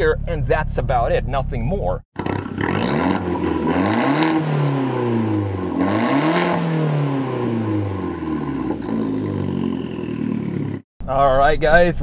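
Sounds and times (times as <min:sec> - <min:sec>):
car engine revving: 0:02.2 - 0:10.8.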